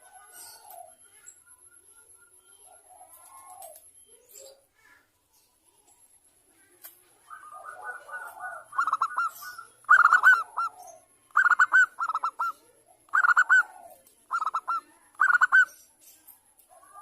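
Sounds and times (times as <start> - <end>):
dove cooing in rippling bursts: 7.2 - 15.7.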